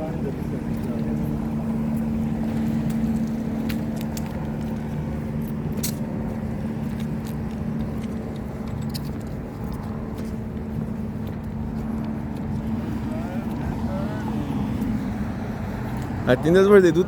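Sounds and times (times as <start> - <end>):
low mechanical hum: 0.0 - 16.2
light clicks and jingles: 0.2 - 12.8.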